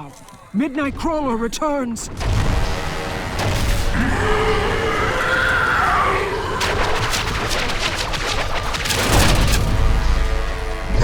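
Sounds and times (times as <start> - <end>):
crashing impacts: 3.4 - 10.9
monster screech: 3.9 - 7.8.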